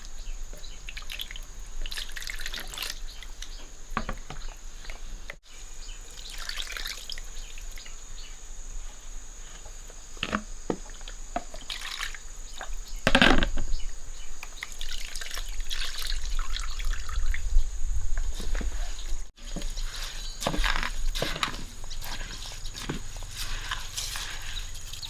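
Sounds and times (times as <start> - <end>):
water splashing and dripping: 0.0 - 5.4, 6.0 - 7.9, 10.8 - 12.8, 14.4 - 17.5, 20.4 - 25.0.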